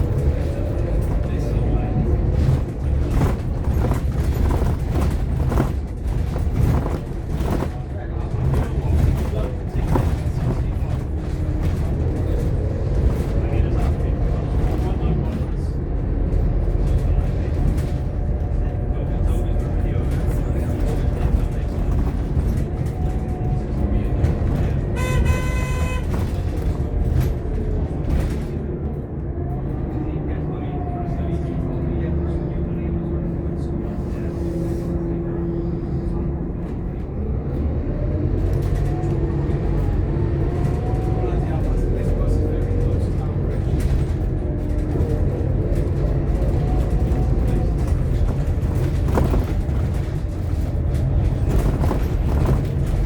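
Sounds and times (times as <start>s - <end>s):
bus engine and road rumble: 0.0s - 53.0s
vehicle horn: 24.9s - 26.4s.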